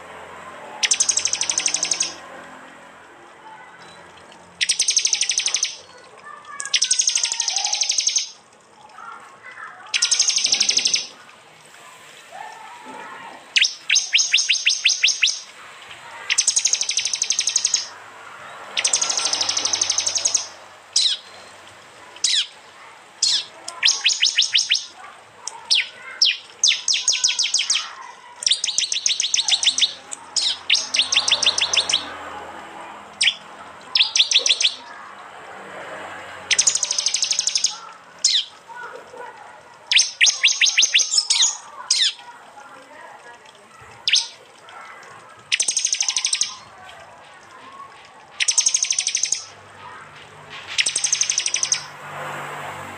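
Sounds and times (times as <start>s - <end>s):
bird giving rapid sharp notes: 0.8s - 2.2s, 4.5s - 9.1s, 9.8s - 11.2s, 13.2s - 18.0s, 18.6s - 21.4s, 22.0s - 32.1s, 33.0s - 35.0s, 36.5s - 38.9s, 39.9s - 42.3s, 43.9s - 46.8s, 47.6s - 51.9s.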